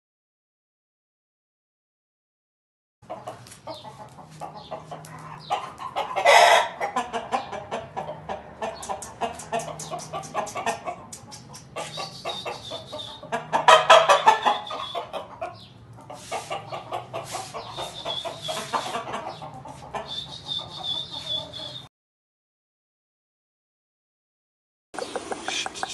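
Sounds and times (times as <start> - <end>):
chickens clucking: 3.0 - 21.9, 25.0 - 25.9
quick clicks: 8.8 - 12.0.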